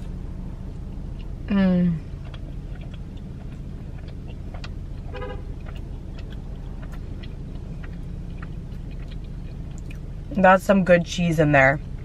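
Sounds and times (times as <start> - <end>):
car engine idling: 0.0 - 12.0
soft chewing clicks: 2.0 - 10.4
car horn toot: 5.1 - 5.5.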